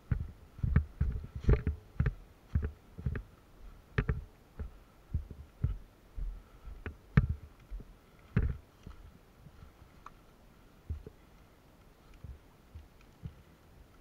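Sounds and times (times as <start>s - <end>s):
dull uneven thumps: 0.0s - 10.2s, 10.8s - 11.3s.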